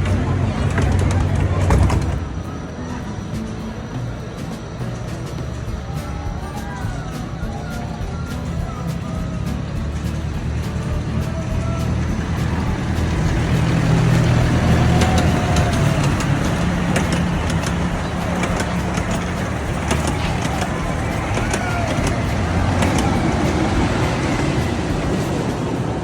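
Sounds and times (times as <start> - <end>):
clicks and knocks from track: 0.0 - 2.7, 3.3 - 26.0
low engine drone: 0.0 - 26.0.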